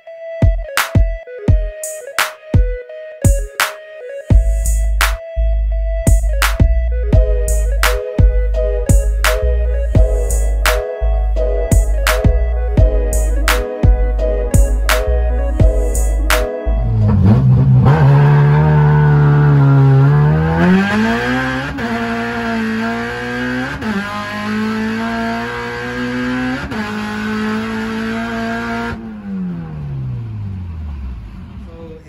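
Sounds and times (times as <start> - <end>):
car engine revving hard: 16.8 - 31.7.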